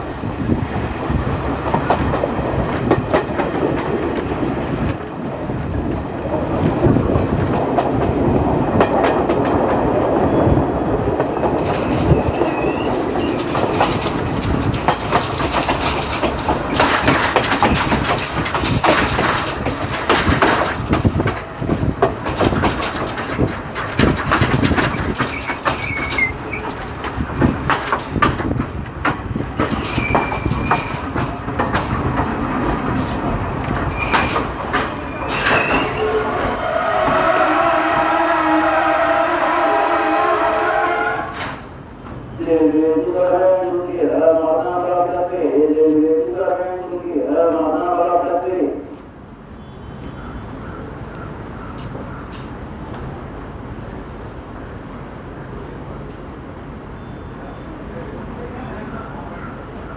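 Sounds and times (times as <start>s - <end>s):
train wheels clattering over rails: 0.0s - 46.9s, 50.0s - 56.8s
high-pitched wheel squeals: 35.1s - 41.6s.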